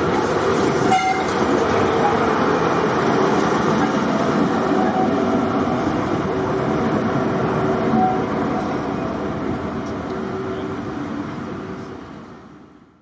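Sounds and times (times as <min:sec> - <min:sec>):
diesel locomotive engine rumble: 0:00.0 - 0:13.0.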